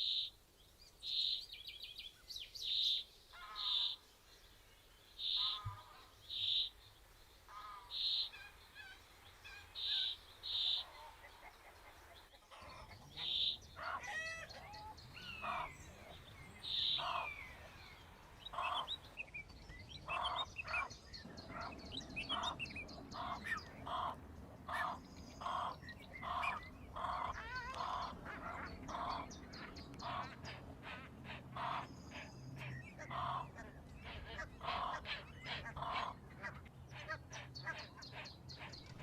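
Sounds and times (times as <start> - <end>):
higher bird chirps: 5.2 - 6.9, 12.5 - 30.6.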